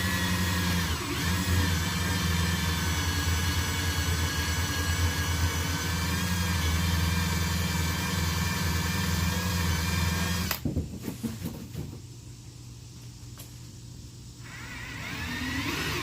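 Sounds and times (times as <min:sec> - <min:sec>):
power tool whining: 0:00.0 - 0:10.6, 0:14.4 - 0:16.0.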